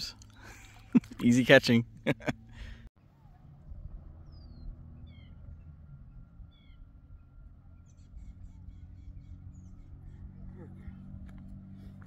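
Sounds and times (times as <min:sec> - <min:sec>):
wind rumble on microphone: 0:03.3 - 0:12.0
high downward-sliding bird calls: 0:04.2 - 0:10.6.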